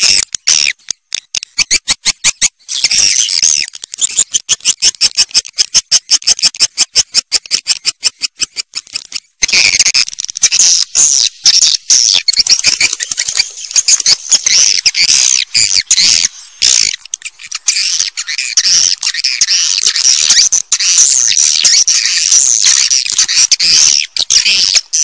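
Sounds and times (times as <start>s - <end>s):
high clicking chirps: 0.0s - 25.0s
swiftlets twittering: 10.5s - 25.0s.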